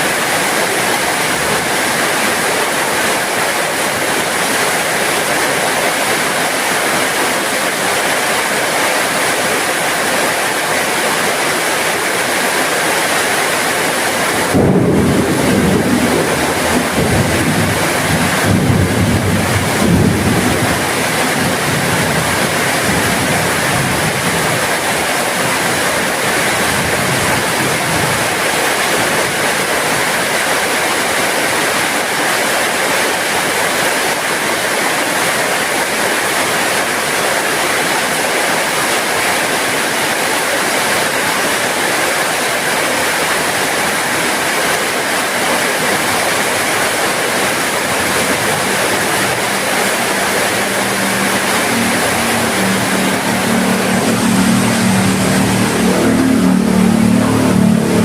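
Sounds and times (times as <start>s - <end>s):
heavy rain: 0.0s - 58.0s
thunder rumbling: 14.3s - 24.5s.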